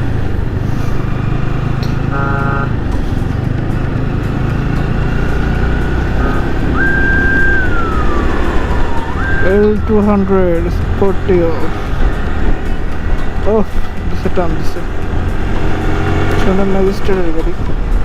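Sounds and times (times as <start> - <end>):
motorcycle engine running: 0.0 - 18.0
vehicle horn: 2.0 - 2.9, 6.1 - 6.8
siren rising and falling: 5.4 - 11.2.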